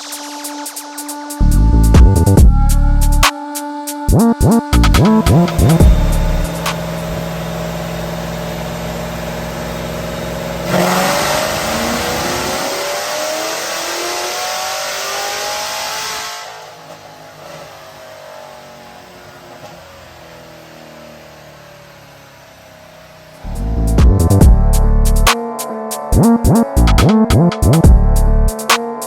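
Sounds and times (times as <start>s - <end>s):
car engine running and revving: 1.4s - 3.2s, 4.1s - 25.3s.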